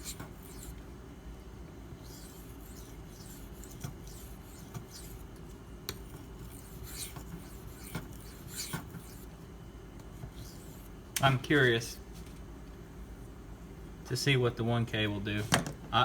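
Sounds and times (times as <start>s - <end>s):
knife scraping on sharpening stone: 0.0s - 0.8s, 2.0s - 5.2s, 6.1s - 9.3s.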